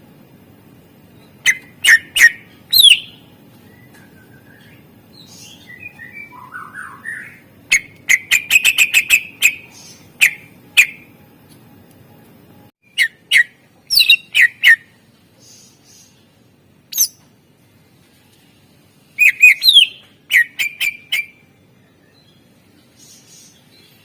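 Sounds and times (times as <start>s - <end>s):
bird singing whistled notes: 1.4s - 11.1s, 12.8s - 16.0s, 16.9s - 17.2s, 19.2s - 22.4s
faint steady hiss: 14.8s - 20.3s.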